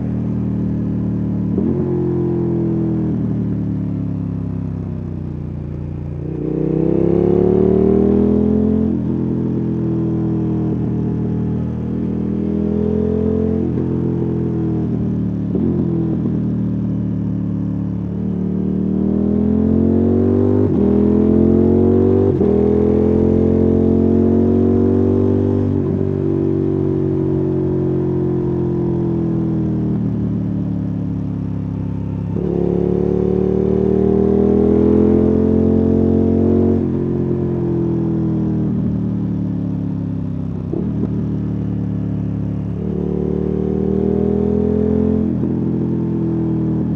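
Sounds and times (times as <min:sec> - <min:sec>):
motorcycle engine and exhaust: 0:00.0 - 0:46.9.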